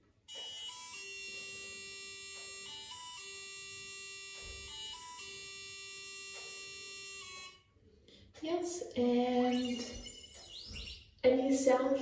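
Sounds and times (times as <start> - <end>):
buzzy electronic beeping melody: 0.4 - 7.6, 9.2 - 11.2.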